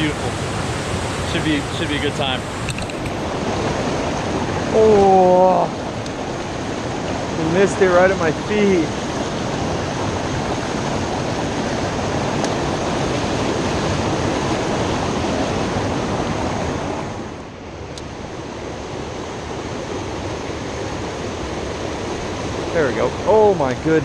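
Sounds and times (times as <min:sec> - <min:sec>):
water rushing over small waterfalls: 0:00.0 - 0:06.6.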